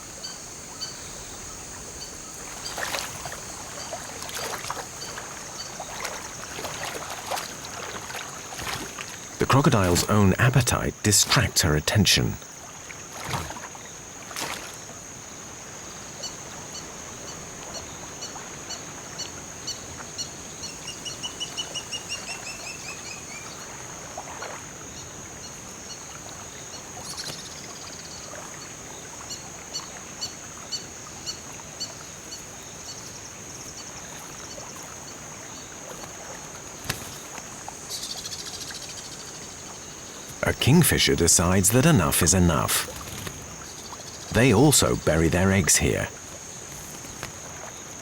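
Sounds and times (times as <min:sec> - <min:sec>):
birds chirping: 0:40.1 - 0:46.1.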